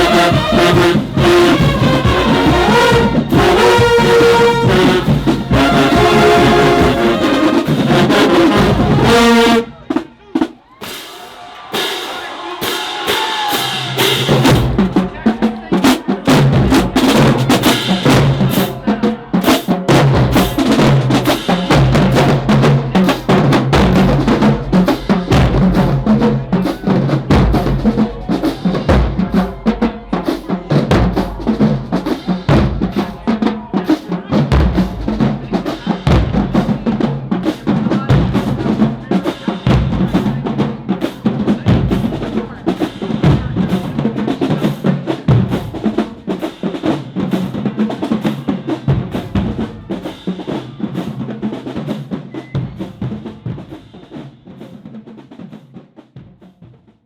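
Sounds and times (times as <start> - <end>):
pounding bass drums: 0.0 - 9.5, 12.3 - 50.1
snare drum strokes and rolls: 0.0 - 57.0.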